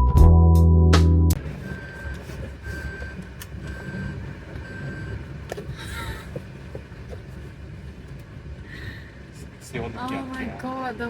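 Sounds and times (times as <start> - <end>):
car rumble: 1.3 - 11.0.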